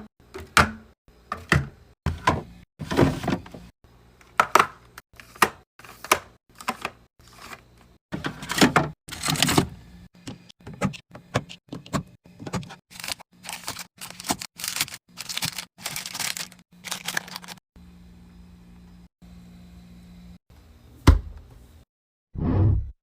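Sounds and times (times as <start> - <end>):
packaging tearing and crinkling: 12.9 - 17.6.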